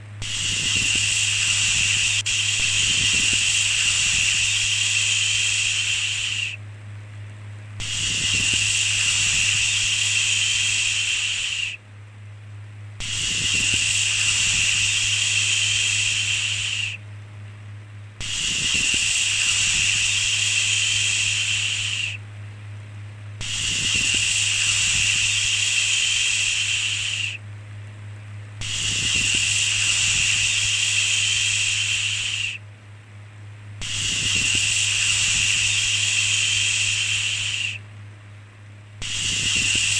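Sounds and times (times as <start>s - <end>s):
low hum: 0.0s - 39.9s
shushing sounds: 0.2s - 6.6s, 7.8s - 11.8s, 13.0s - 17.0s, 18.2s - 22.2s.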